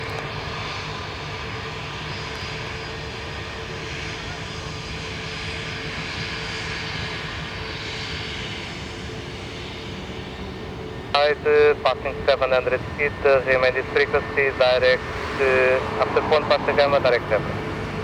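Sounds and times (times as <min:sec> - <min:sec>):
jet engines roaring: 0:00.0 - 0:18.0
faint steady whine: 0:11.1 - 0:18.0.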